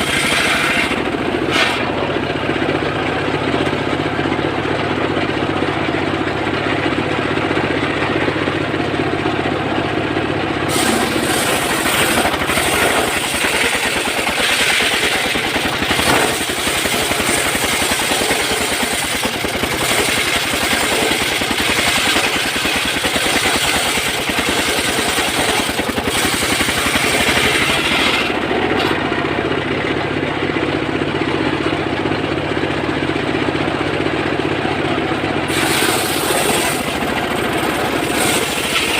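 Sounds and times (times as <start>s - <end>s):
saw cutting into log: 0.0s - 2.0s, 10.7s - 29.0s, 35.5s - 38.9s
chainsaw running: 0.0s - 3.4s, 10.6s - 29.9s, 35.4s - 38.9s.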